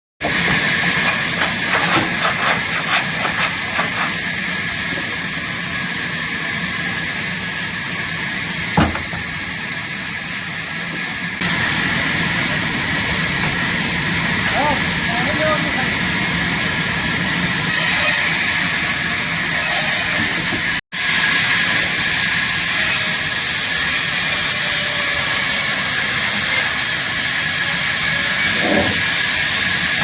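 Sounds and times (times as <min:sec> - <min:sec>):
sawmill machinery running: 0:00.2 - 0:30.0
sharp knock: 0:08.8 - 0:09.3.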